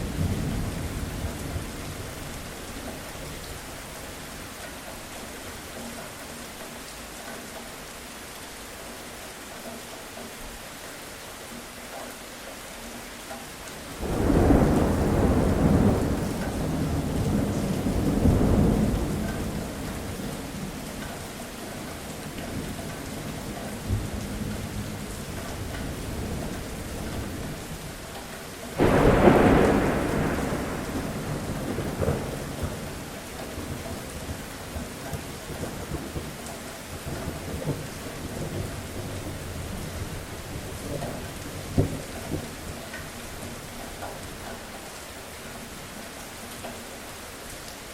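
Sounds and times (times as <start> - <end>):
steady rain: 0.0 - 47.9
thunder rumbling: 14.0 - 20.9, 28.8 - 36.4.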